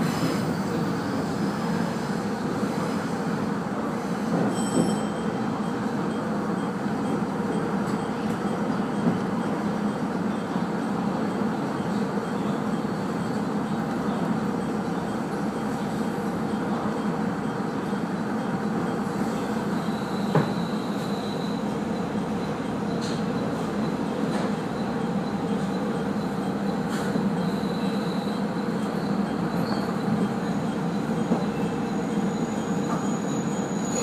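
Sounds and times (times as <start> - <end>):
train wheels rumbling on rails: 0.0 - 34.0
faint high wheel squeal: 3.9 - 7.2, 18.9 - 34.0.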